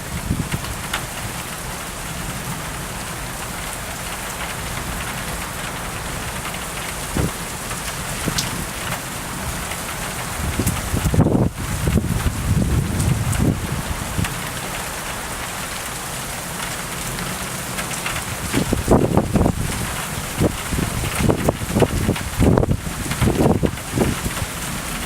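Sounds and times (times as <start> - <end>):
heavy rain falling: 0.0 - 25.0
sharp raindrop clicks: 3.4 - 25.0
low thunder rumble: 9.4 - 14.4, 18.3 - 25.0.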